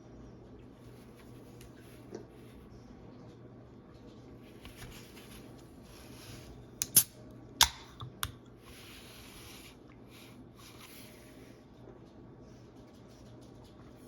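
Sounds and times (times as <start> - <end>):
packaging sharp snaps: 6.8 - 8.4.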